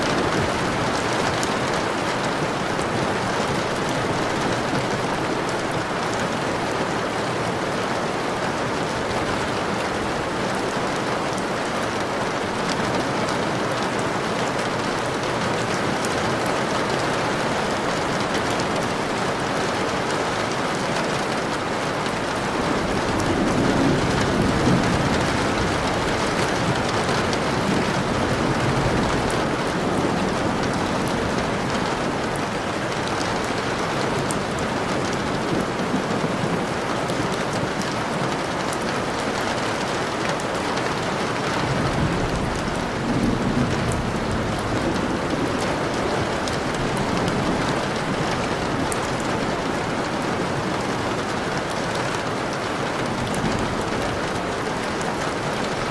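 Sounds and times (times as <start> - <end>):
steady rain falling: 0.0 - 55.9
distant thunder rumbles: 21.3 - 37.8, 41.7 - 50.7.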